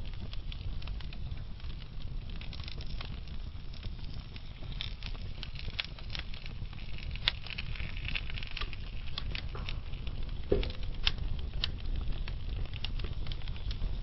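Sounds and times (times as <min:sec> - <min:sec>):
log fire crackling: 0:00.0 - 0:14.0.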